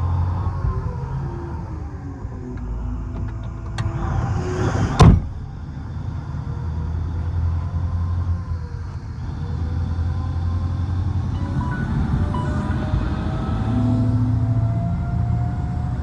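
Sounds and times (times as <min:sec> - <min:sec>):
truck engine humming: 0:00.0 - 0:14.9
loud sharp bang: 0:03.8 - 0:05.6.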